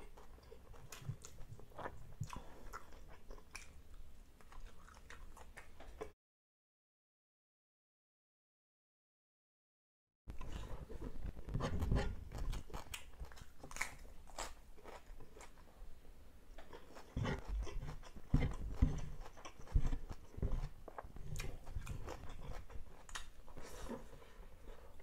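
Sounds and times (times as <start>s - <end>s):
close chewing with mouth clicks: 0.0s - 6.1s, 10.3s - 15.8s, 16.6s - 25.0s.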